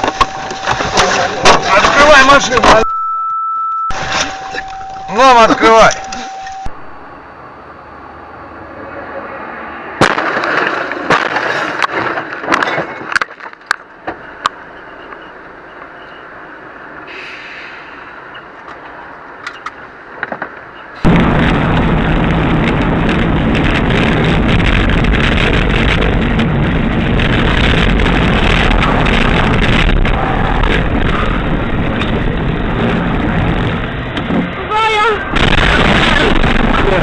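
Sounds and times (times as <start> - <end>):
vehicle noise: 0.0 - 3.0, 3.9 - 37.0
loud rough noise: 21.0 - 37.0.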